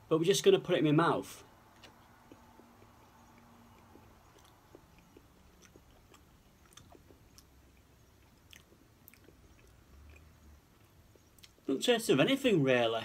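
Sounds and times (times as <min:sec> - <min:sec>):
person chewing food: 0:01.6 - 0:11.7.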